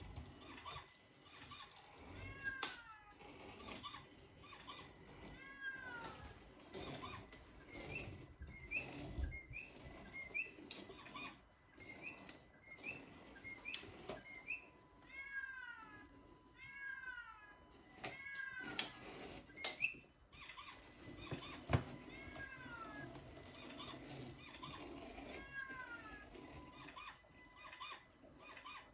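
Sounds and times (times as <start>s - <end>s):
cats meowing: 1.9s - 7.4s, 15.0s - 19.2s, 20.4s - 28.9s.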